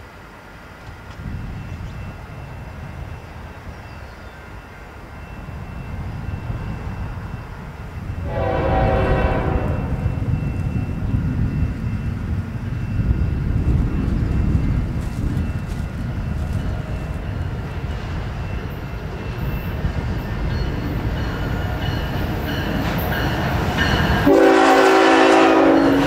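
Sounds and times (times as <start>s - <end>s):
freight train engine and rail rumble: 0.0s - 26.0s
train air horn blast: 8.2s - 10.2s, 24.2s - 26.0s.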